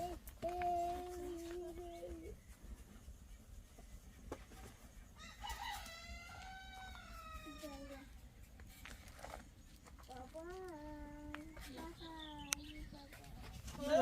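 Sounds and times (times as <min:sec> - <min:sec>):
rooster crowing: 0:05.2 - 0:07.9.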